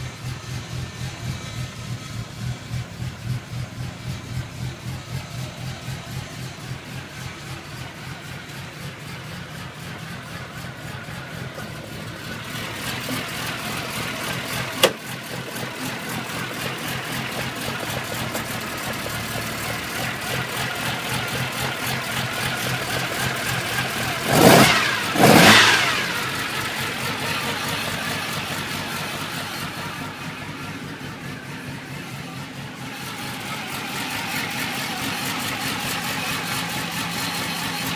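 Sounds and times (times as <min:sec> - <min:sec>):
car engine idling: 0:00.0 - 0:37.9
engine throttle blips: 0:00.0 - 0:37.9
sharp crack: 0:12.9 - 0:15.5.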